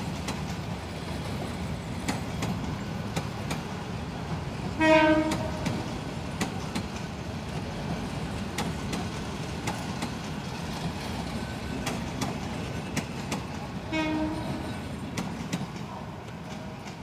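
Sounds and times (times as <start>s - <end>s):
rumble of wheels on rail: 0.0s - 17.0s
wheels clicking over rail joints: 0.0s - 17.0s.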